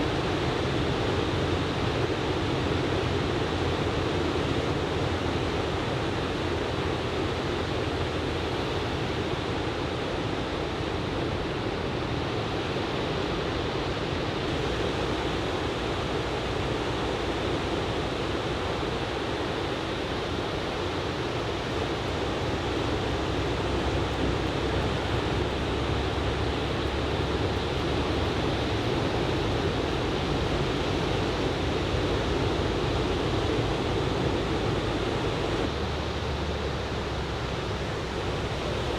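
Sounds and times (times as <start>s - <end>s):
ocean surf breaking: 18.1s - 35.4s.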